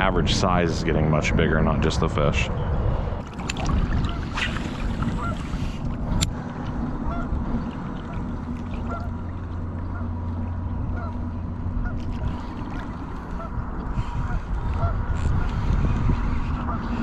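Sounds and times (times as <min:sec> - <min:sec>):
wind buffeting microphone: 0:00.0 - 0:17.0
squeaky fishing reel: 0:15.1 - 0:17.0.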